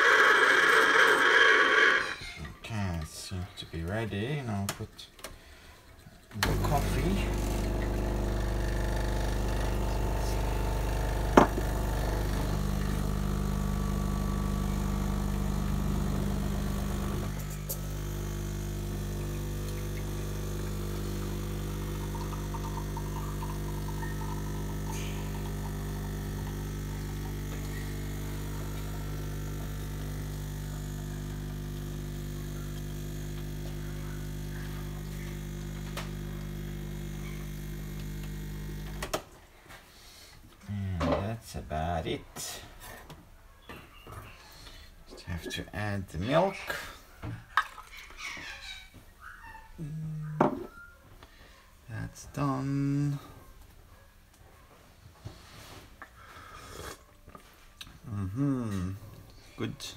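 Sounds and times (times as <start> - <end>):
espresso machine pump humming: 6.4 - 39.2.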